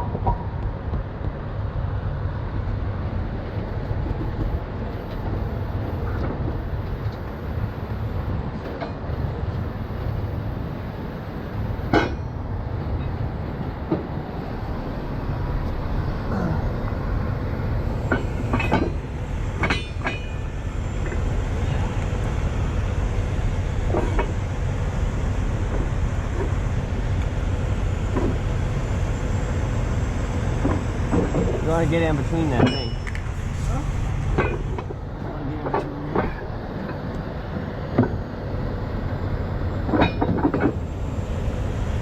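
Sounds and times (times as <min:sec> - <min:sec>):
diesel truck engine idling: 0:09.1 - 0:36.9
metal clanks of tow gear: 0:18.1 - 0:19.0, 0:19.6 - 0:21.2.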